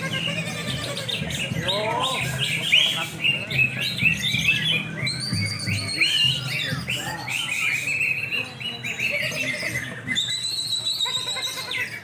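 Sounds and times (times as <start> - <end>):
caged birds singing: 0.0 - 12.0
low background murmur: 0.0 - 12.0.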